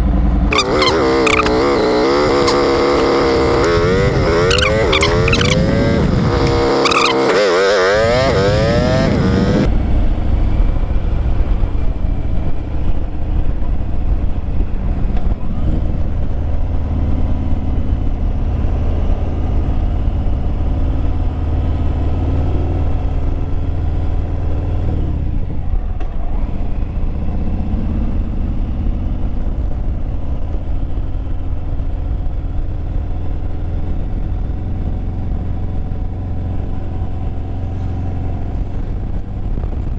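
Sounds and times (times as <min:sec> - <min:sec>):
motorcycle engine drone: 0:00.0 - 0:39.9.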